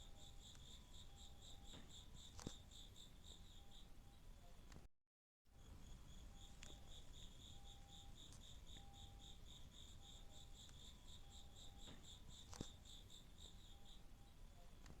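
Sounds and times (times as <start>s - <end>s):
sharp click: 1.7s - 2.6s, 11.8s - 12.8s
insect trilling: 5.6s - 14.3s.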